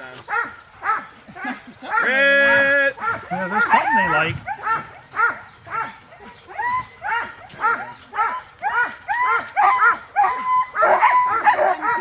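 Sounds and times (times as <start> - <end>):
sled dogs barking and yipping: 0.0 - 12.0.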